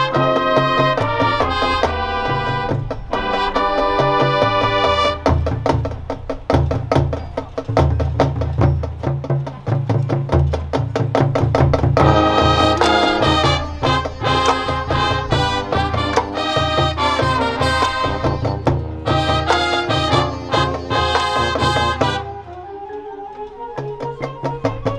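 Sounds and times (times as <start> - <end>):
brass section chords: 0.0 - 6.0, 12.0 - 23.2
marching band drum strikes: 0.0 - 22.6.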